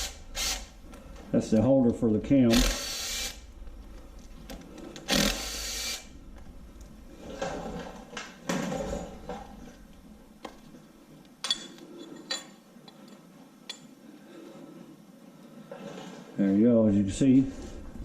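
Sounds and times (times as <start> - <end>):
power driver whirring: 2.5 - 3.5, 5.0 - 6.1
metallic clicks of tools set down: 11.4 - 13.9.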